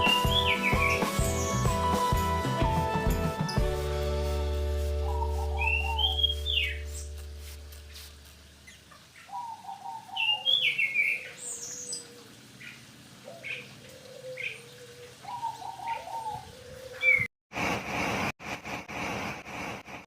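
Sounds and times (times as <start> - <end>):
bird chirping and whistling: 0.0 - 2.0, 5.0 - 7.2
bird warbling runs: 3.5 - 9.3
steady held bird note: 4.2 - 7.2.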